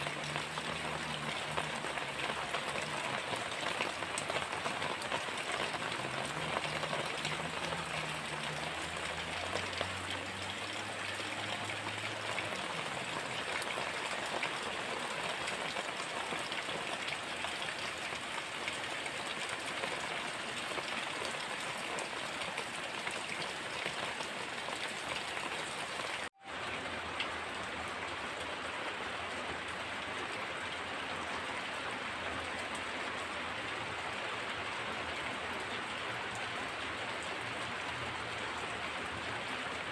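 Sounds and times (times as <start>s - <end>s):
heavy rain hissing: 0.0s - 17.6s.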